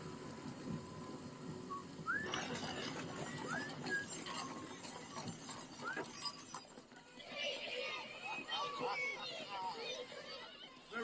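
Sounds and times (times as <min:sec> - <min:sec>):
low background ambience: 0:00.0 - 0:05.9.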